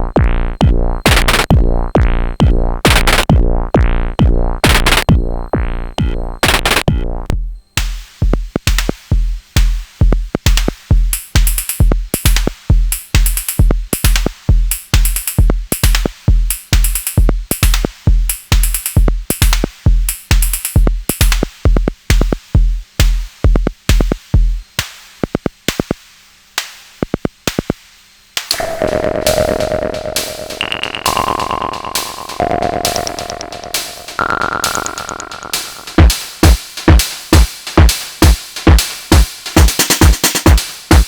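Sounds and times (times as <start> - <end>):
hi-hats and percussion: 0.0 - 7.0, 7.7 - 41.0
kick drum: 0.0 - 24.8, 35.5 - 41.0.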